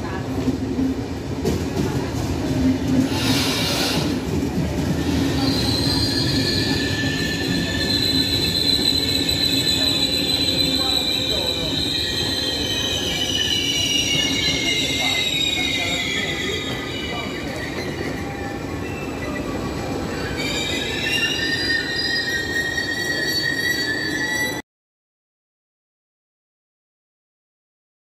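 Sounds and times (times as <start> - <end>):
train rumble: 0.0 - 21.0
high wheel squeal: 3.0 - 4.2, 5.0 - 24.6.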